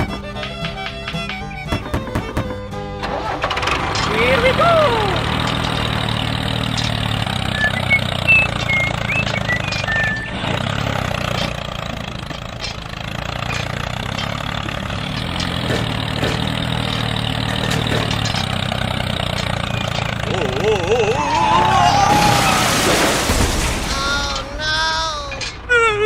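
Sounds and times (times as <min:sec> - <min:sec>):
small engine running steadily: 0:00.0 - 0:22.1
short high chirps: 0:07.5 - 0:10.4.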